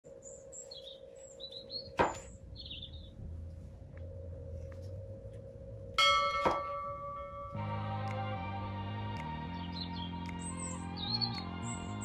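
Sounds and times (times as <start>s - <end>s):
steady hum: 0.0s - 12.0s
high bird chirps: 0.2s - 3.2s, 9.5s - 12.0s.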